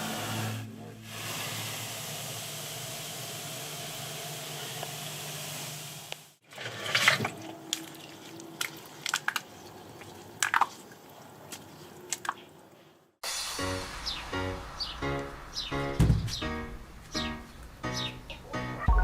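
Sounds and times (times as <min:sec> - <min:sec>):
fizzing hiss: 0:13.2 - 0:15.9.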